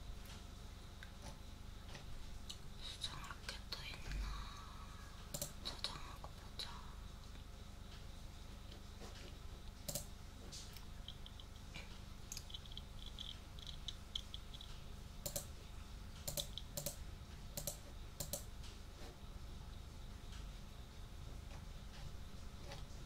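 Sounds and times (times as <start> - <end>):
keyboard and mouse clicking: 5.3 - 5.6, 9.8 - 10.1, 12.3 - 15.5, 16.2 - 17.0, 17.6 - 18.5.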